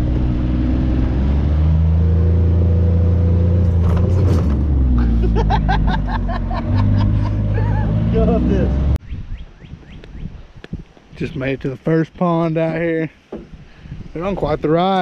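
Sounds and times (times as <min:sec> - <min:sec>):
utility vehicle engine running: 0:00.0 - 0:09.0.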